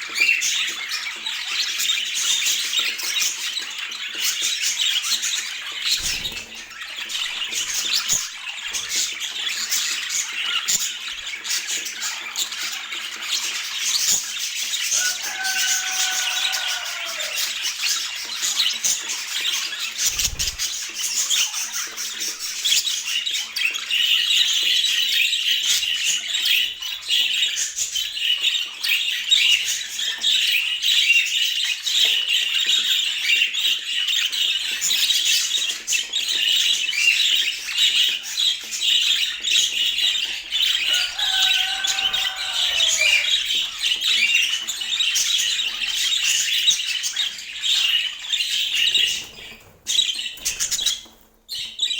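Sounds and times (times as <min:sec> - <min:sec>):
budgerigars chattering: 0:00.1 - 0:30.7, 0:32.2 - 0:51.1
low falling bird call: 0:40.7 - 0:44.4.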